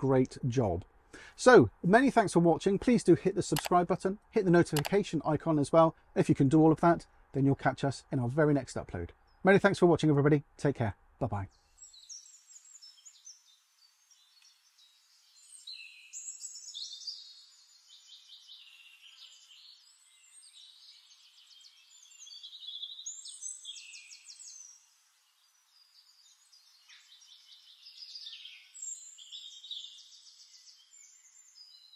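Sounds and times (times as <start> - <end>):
songbirds warbling: 11.3 - 31.9.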